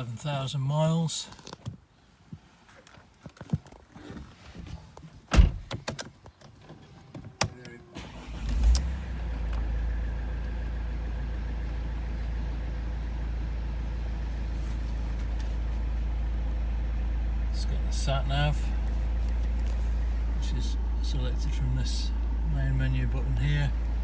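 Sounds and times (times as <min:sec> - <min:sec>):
diesel engine starting and idling: 0:07.3 - 0:24.0.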